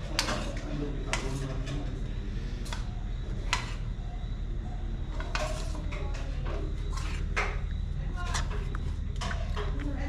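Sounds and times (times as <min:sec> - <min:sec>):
utensils clinking against pot: 0:00.0 - 0:01.9, 0:05.1 - 0:09.8.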